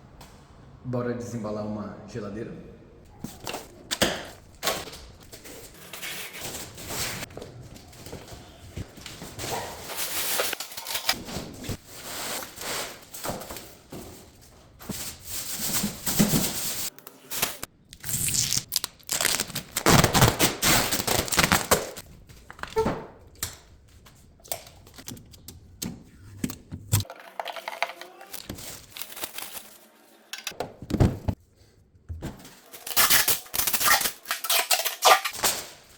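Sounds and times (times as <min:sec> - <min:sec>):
packaging tearing and crinkling: 0:17.4 - 0:22.0, 0:28.2 - 0:29.8, 0:32.6 - 0:35.9
knocks and thuds: 0:30.6 - 0:31.4.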